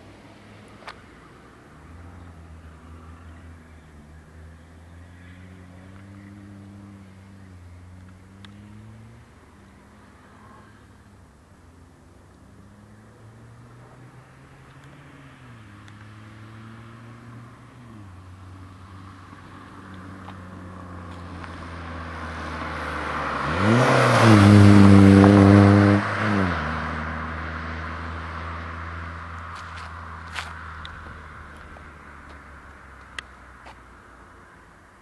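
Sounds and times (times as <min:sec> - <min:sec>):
diesel engine revving: 0:20.6 - 0:29.0.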